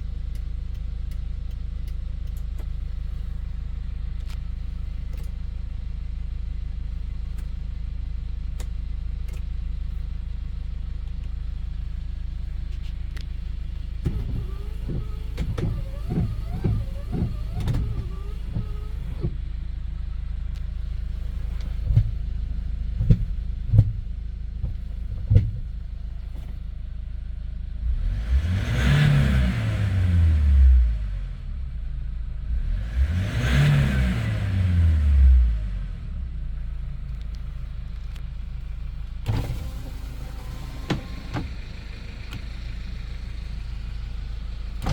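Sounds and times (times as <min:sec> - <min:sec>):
truck engine idling: 0:00.0 - 0:27.8, 0:36.4 - 0:44.9
engine revving: 0:14.0 - 0:19.4, 0:27.8 - 0:31.5, 0:32.5 - 0:36.9.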